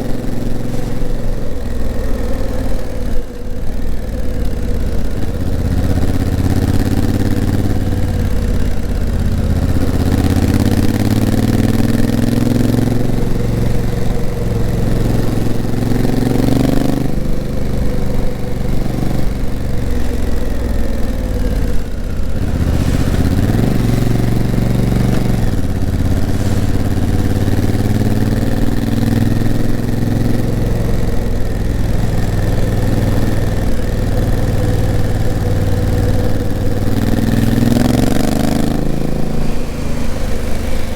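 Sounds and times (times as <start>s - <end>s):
motorcycle engine revving: 0.0s - 40.9s
road noise: 0.0s - 40.9s
rushing wind: 17.0s - 40.9s.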